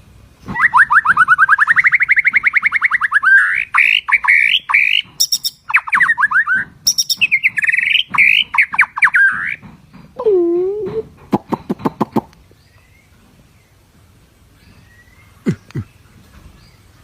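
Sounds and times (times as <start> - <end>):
low drawn-out bird call: 0.4 - 9.6
songbird fast trills: 0.5 - 9.6.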